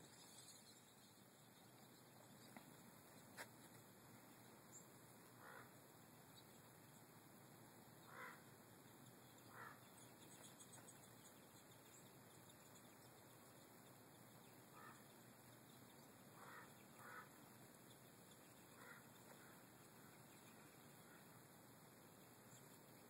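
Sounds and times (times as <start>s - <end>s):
steady background hiss: 0.0s - 23.0s
harsh bird calls: 8.0s - 8.6s, 9.3s - 11.1s, 14.5s - 15.3s, 16.3s - 17.6s, 18.5s - 21.4s.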